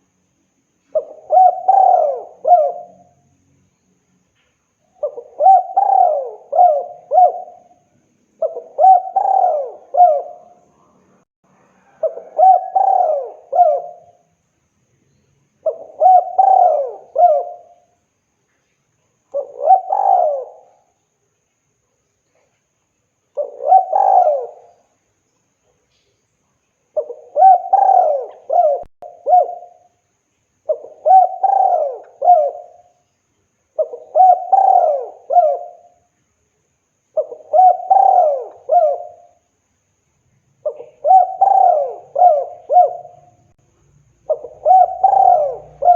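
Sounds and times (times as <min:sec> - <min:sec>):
dove cooing: 0:00.9 - 0:03.2, 0:05.0 - 0:10.7, 0:11.8 - 0:14.2, 0:15.6 - 0:17.9, 0:19.4 - 0:20.9, 0:23.4 - 0:24.8, 0:27.0 - 0:29.9, 0:30.7 - 0:32.9, 0:33.8 - 0:36.0, 0:37.2 - 0:39.4, 0:40.6 - 0:43.5, 0:44.2 - 0:45.9.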